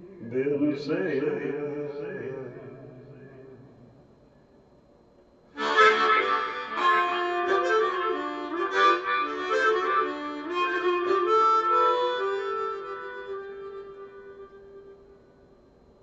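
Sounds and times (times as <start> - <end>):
blues harmonica playing: 5.6 - 15.2.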